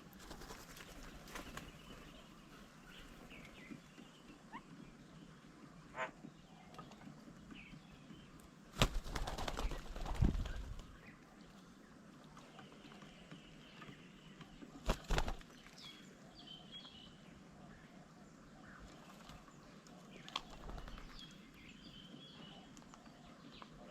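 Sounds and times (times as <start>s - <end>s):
bird wings flapping: 0.0s - 2.1s, 8.7s - 11.0s, 14.8s - 15.6s, 20.2s - 21.3s.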